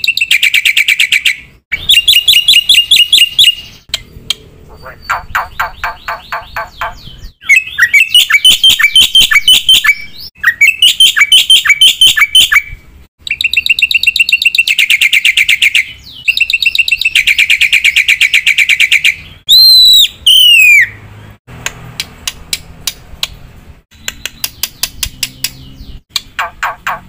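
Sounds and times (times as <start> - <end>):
bird trilling: 0.0 - 21.0
bird clicks and chirps: 3.1 - 4.5, 13.2 - 17.6, 21.6 - 27.0
bird whistles falling in pitch: 19.5 - 20.9.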